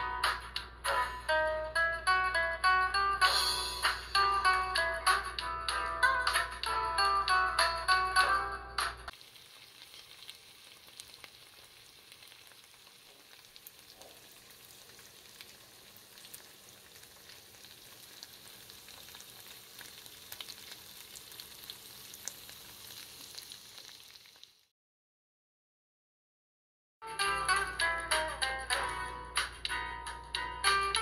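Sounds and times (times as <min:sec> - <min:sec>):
chicken frying in oil: 0:09.1 - 0:24.7
crackles and pops of oil: 0:09.2 - 0:17.4.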